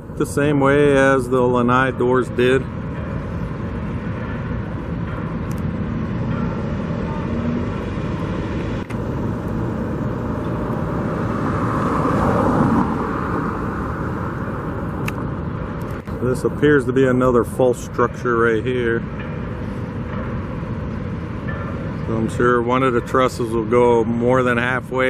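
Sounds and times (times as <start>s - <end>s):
road traffic noise: 0.0s - 25.0s
vehicle passing close: 4.9s - 16.6s.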